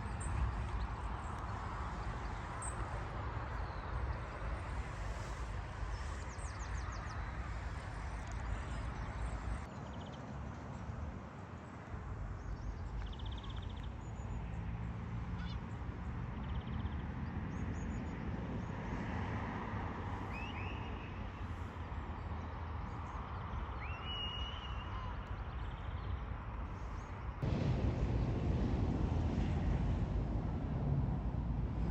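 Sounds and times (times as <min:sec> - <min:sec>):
steady low rumble: 0:26.9 - 0:31.9
loud rushing noise: 0:27.4 - 0:31.9.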